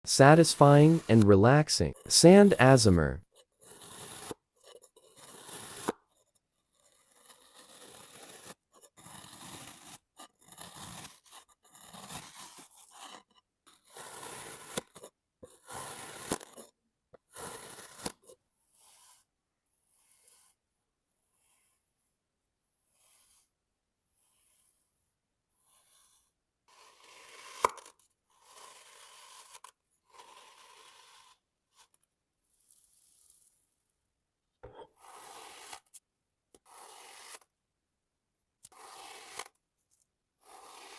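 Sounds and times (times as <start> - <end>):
scraping cuts in packed sand: 40.4 - 40.9.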